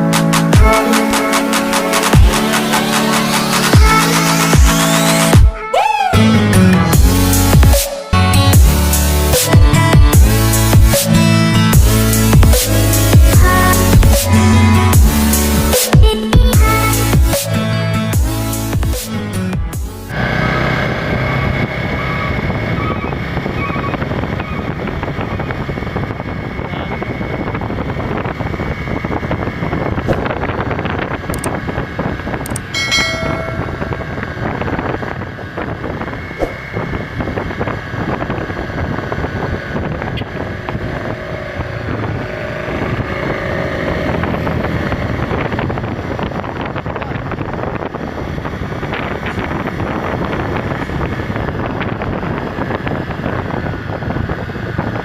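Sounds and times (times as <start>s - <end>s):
vehicle engines and tyres: 0.0s - 55.0s
wind buffeting microphone: 20.9s - 55.0s.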